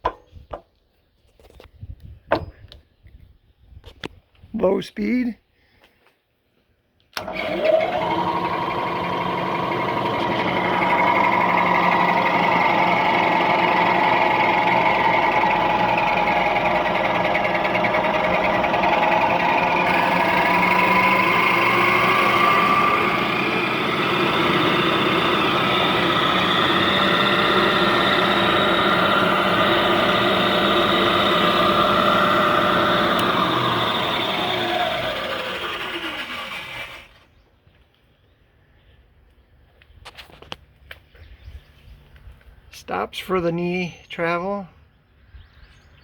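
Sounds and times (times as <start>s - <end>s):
milling machine whine: 7.2s - 37.1s.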